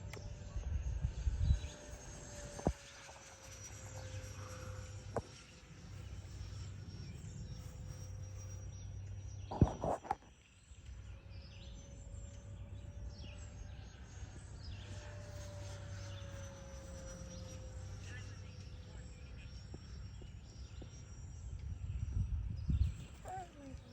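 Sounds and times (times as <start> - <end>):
distant model jet whine: 0.0 - 23.9.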